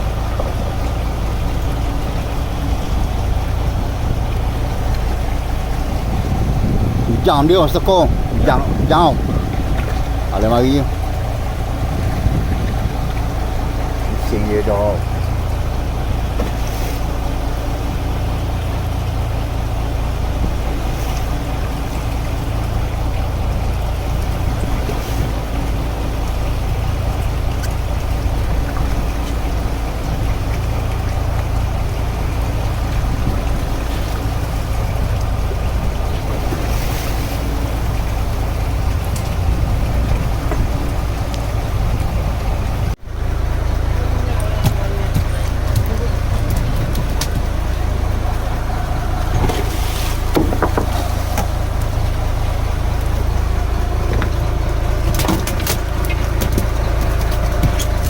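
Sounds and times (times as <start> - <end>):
boat engine rumbling: 0.0 - 58.0
wind: 0.0 - 58.0
water hiss: 47.6 - 53.7.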